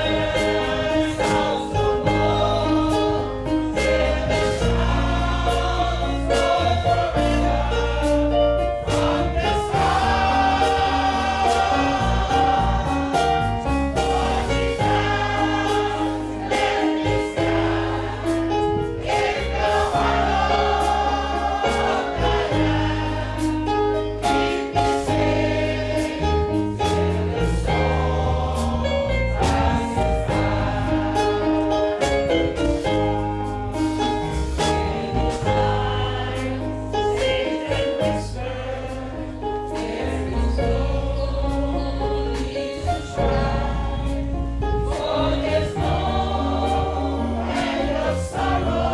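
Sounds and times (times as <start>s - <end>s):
choir singing gospel: 0.0s - 48.9s
instrumental accompaniment with beat: 0.0s - 48.9s.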